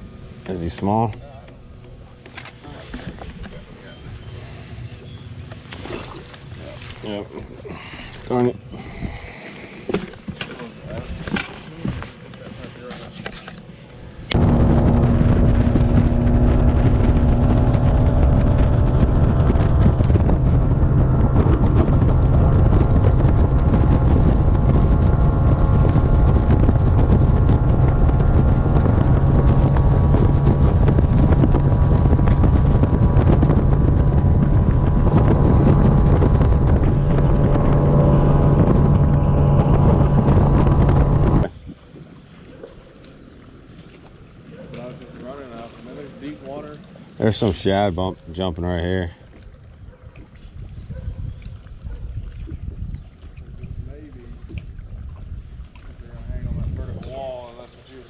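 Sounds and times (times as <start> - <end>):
outboard motor running: 0.0 - 12.6, 13.2 - 41.6
wind buffeting microphone: 14.1 - 41.9, 49.5 - 58.0.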